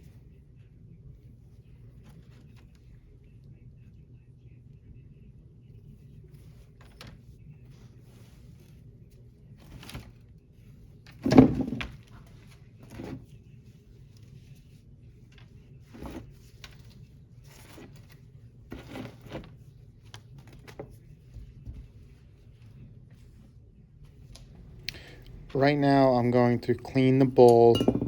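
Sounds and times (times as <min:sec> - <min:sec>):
low steady hum: 0:00.0 - 0:28.0
small parts and tools knocking: 0:27.4 - 0:28.0.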